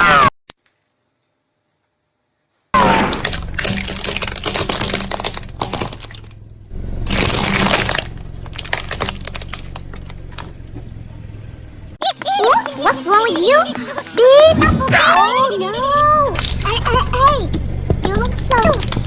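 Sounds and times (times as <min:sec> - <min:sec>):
low engine hum: 0:03.1 - 0:12.0, 0:15.6 - 0:19.0
tyre crunching brittle objects: 0:07.1 - 0:10.5, 0:12.0 - 0:19.0.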